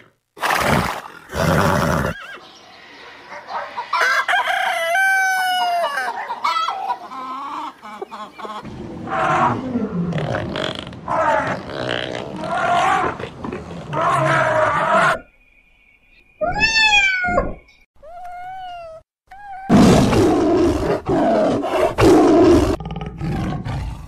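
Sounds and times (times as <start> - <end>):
tiger roaring: 8.8 - 15.2, 19.7 - 24.0
cat meowing: 16.4 - 17.4.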